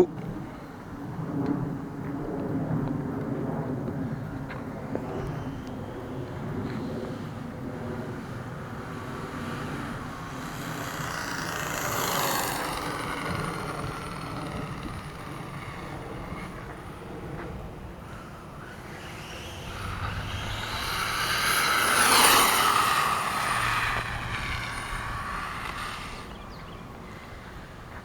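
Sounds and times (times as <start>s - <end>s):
wind on microphone: 0.0s - 28.0s
model truck two-stroke engine running: 8.1s - 17.0s, 18.0s - 27.7s.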